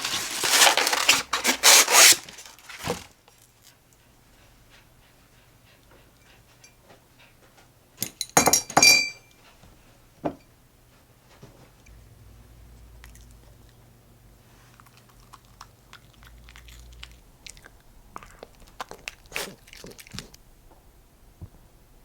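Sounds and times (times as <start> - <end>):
dishes clinking: 8.0 - 9.4.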